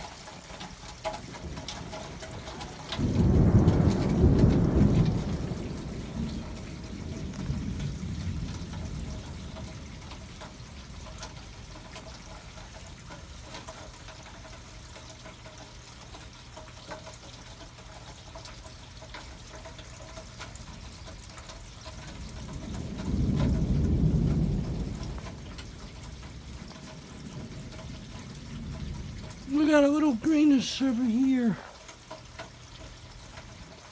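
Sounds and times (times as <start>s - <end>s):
rain pouring and trickling: 0.0s - 33.9s
low thunder rumble: 1.3s - 11.7s, 22.0s - 30.7s.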